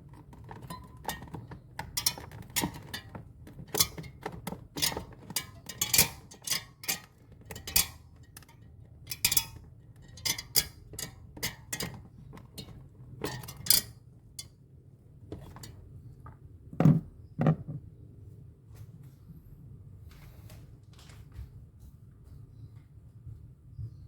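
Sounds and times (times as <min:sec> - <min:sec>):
tools and parts clinking: 0:00.0 - 0:14.5.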